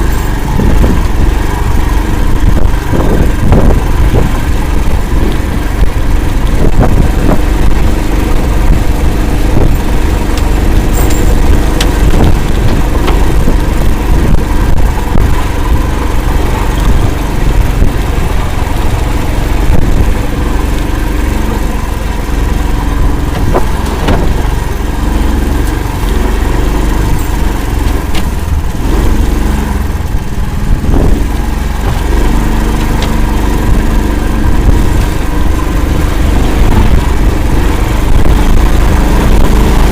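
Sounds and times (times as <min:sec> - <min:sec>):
vehicle engine running: 0:00.0 - 0:39.9
short knocks and clatter: 0:23.2 - 0:24.5.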